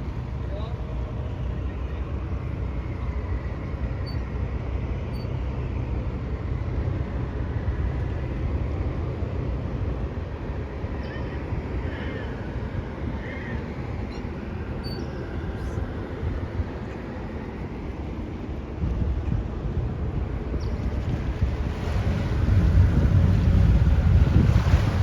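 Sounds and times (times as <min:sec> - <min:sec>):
motorboat engine rumbling: 0:00.0 - 0:25.0
water noise: 0:00.0 - 0:25.0
wind: 0:00.0 - 0:25.0.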